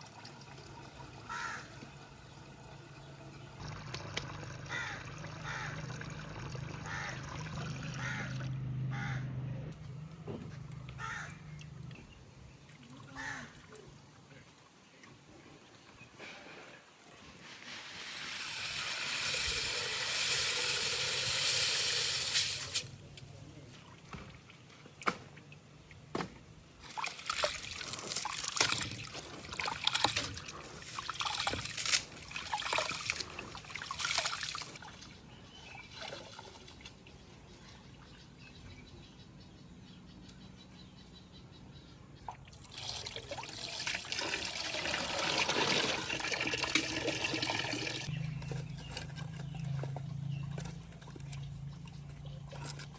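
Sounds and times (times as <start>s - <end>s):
water pouring and splashing: 0.0s - 2.7s, 3.6s - 8.6s, 16.6s - 22.9s, 26.7s - 37.8s, 42.3s - 52.9s.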